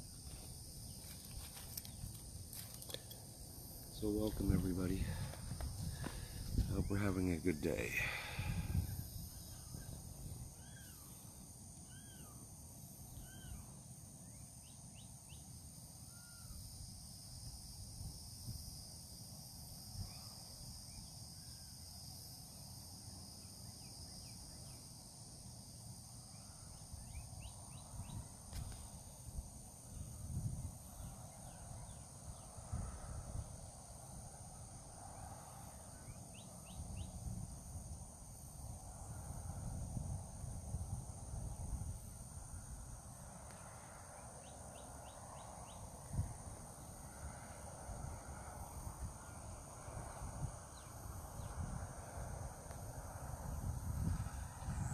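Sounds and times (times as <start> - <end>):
insects droning: 0.0 - 54.9
wind rumble on microphone: 3.9 - 10.6, 27.0 - 44.3, 45.0 - 54.9.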